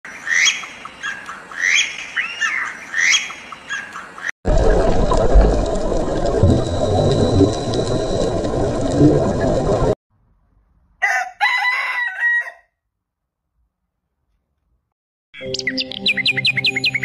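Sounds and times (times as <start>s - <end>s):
rooster crowing: 11.0s - 12.8s.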